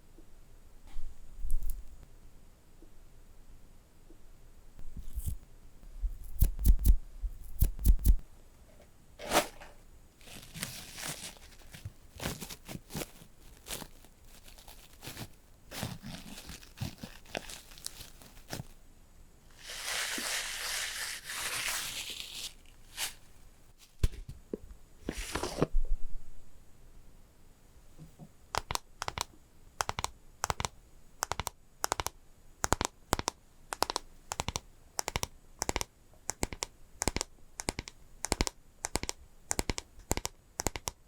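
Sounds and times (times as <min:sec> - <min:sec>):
scratchy rustles: 0:09.2 - 0:18.8
sharp taps and clicks: 0:28.6 - 0:41.0.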